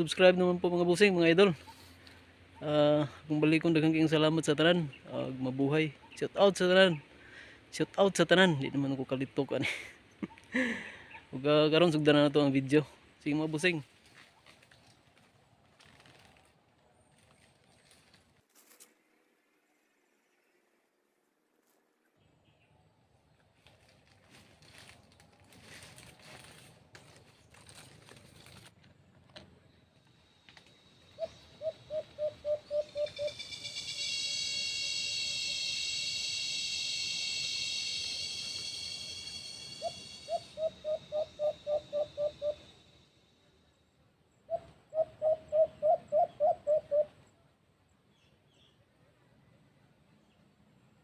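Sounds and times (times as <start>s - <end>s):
high insect drone: 30.0s - 43.8s
dove hooting calls: 31.0s - 43.0s, 44.5s - 47.2s.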